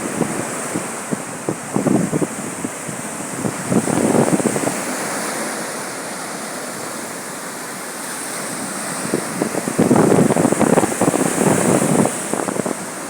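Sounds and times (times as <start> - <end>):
wind buffeting microphone: 0.0 - 5.8, 8.3 - 13.0
waves washing onto beach: 0.0 - 13.0.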